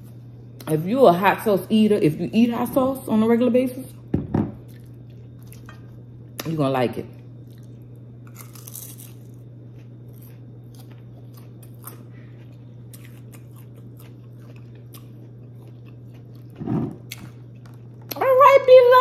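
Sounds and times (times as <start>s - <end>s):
steady low hum: 0.0s - 19.0s
person chewing crisp fried fish: 7.4s - 18.2s.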